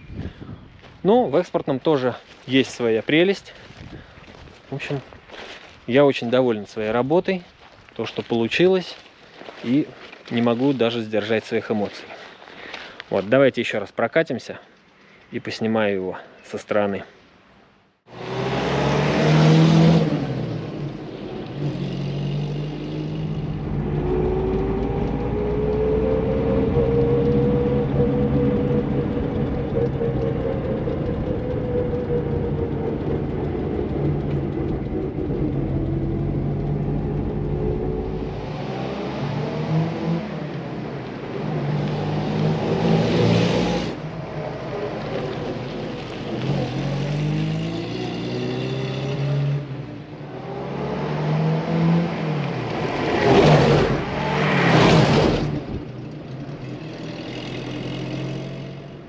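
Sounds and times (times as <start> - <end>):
car driving past: 18.1 - 55.9
car engine running: 27.1 - 38.4.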